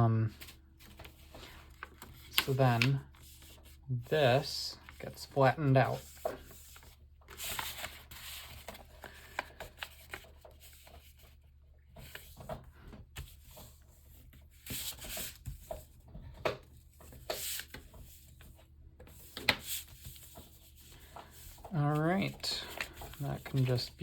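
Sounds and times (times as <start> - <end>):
paper crinkles: 0.3 - 3.8, 4.8 - 11.4, 19.4 - 24.0
paper rustling and rubbing: 0.3 - 3.8, 4.4 - 16.0, 16.8 - 24.0.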